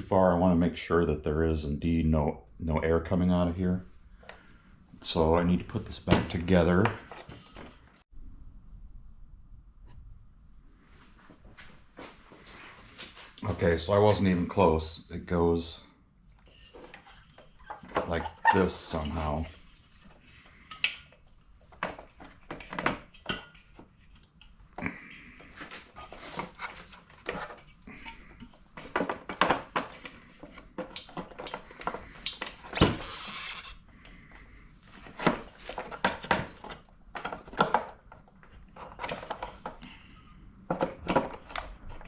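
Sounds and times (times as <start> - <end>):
short rasp: 32.8 - 33.8.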